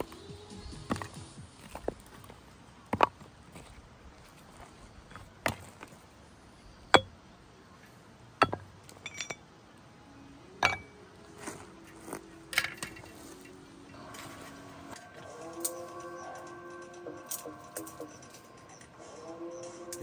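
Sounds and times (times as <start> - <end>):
faint steady tones: 3.5 - 20.0
hard objects knocking and clinking: 8.4 - 9.4, 10.6 - 11.0.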